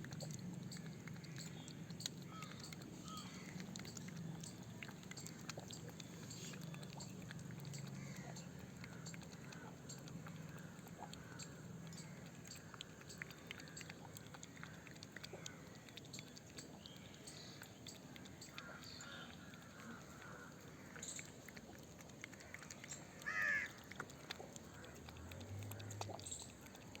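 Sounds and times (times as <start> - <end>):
cat making crow-like calls: 23.2 - 23.7.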